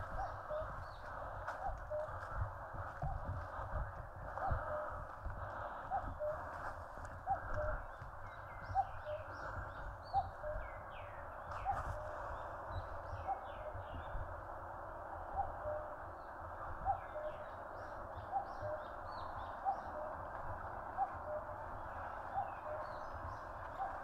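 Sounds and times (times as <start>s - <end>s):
cuckoo calling: 0.0s - 1.0s, 1.6s - 2.3s, 5.9s - 12.2s, 13.2s - 14.0s, 15.3s - 16.0s, 16.8s - 20.3s, 20.9s - 24.0s
small birds chirping faintly: 0.0s - 24.0s.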